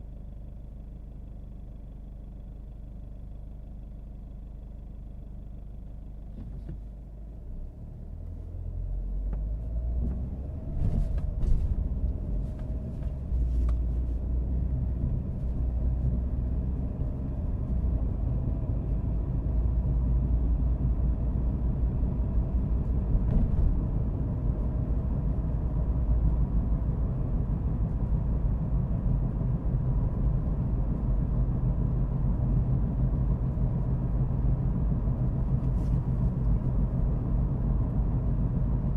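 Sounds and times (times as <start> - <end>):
car engine and road rumble: 0.0 - 38.9.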